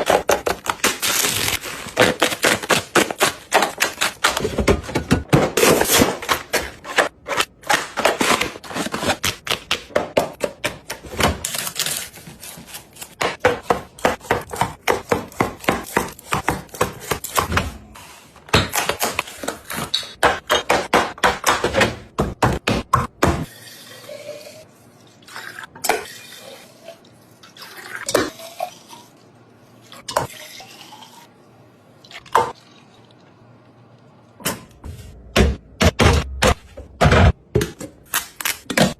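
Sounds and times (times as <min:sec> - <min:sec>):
items clacking in refrigerator: 0:00.0 - 0:12.2.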